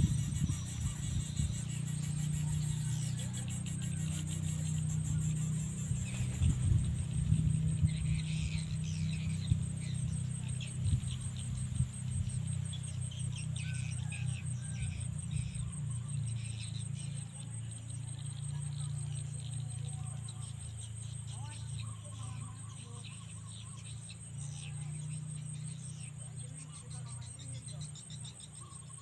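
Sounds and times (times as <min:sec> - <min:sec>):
chirps: 0:00.0 - 0:29.0
high cricket-like insect trill: 0:00.0 - 0:29.0.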